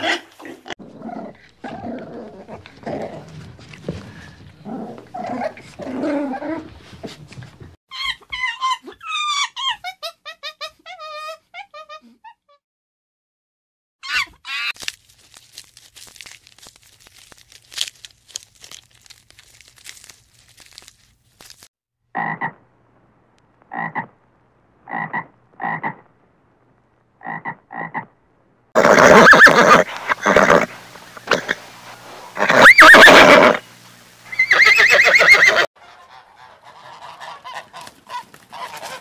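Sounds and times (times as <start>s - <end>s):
panda chewing bamboo: 14.8s - 21.7s
short croaking calls: 22.2s - 22.6s, 23.6s - 24.2s, 24.8s - 26.1s, 27.2s - 28.1s
animal squeal: 28.8s - 30.7s, 32.4s - 33.6s, 34.3s - 35.7s
horse neighing: 28.8s - 31.6s, 32.4s - 33.6s, 34.3s - 35.7s.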